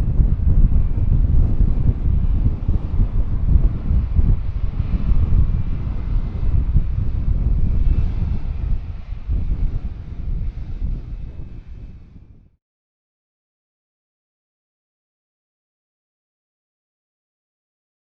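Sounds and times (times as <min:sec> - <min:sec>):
jet engine whine: 0:00.0 - 0:12.6
wind buffeting microphone: 0:00.0 - 0:12.6.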